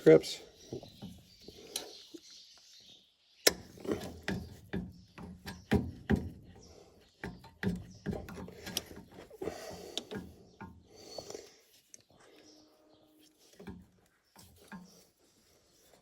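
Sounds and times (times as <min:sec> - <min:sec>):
metal clicks and knocks: 0:07.2 - 0:09.2.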